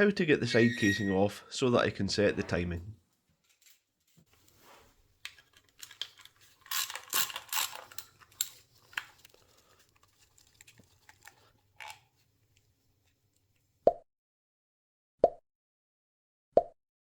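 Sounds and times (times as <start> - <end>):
metal tools and bolts clinking: 0.5 - 1.3, 5.4 - 9.0.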